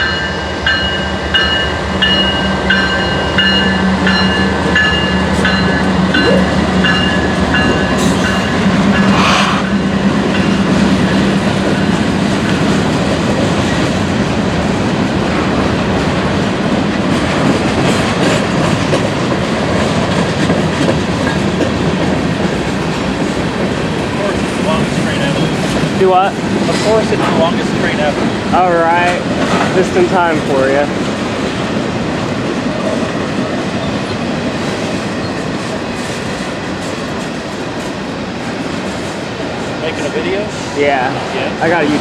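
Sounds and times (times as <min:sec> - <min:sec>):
crossing bell ringing: 0:00.0 - 0:13.9
train wheels clattering and rumbling: 0:00.0 - 0:42.0.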